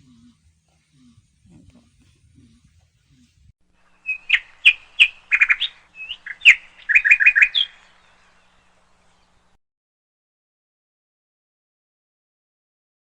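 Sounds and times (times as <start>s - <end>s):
bird chirping: 0.0s - 9.6s.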